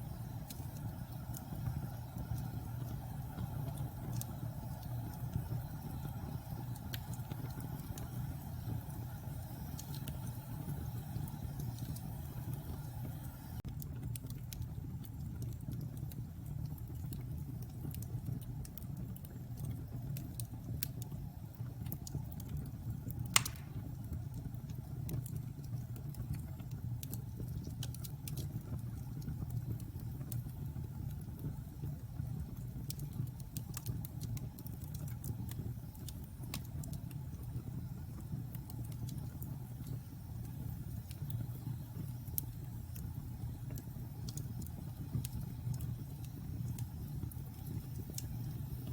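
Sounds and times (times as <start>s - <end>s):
fire crackling: 0.0s - 48.9s
fireplace flames rumbling: 0.0s - 48.9s
loud fire pop: 23.4s - 23.9s.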